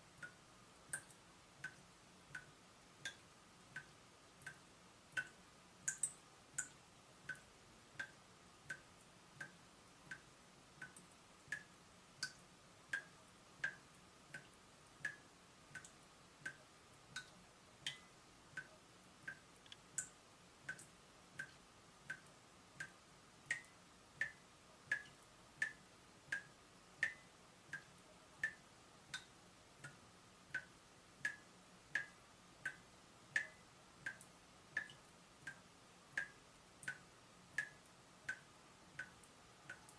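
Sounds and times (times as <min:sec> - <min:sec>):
water dripping from a tap: 0:00.2 - 0:30.0, 0:30.6 - 0:39.9.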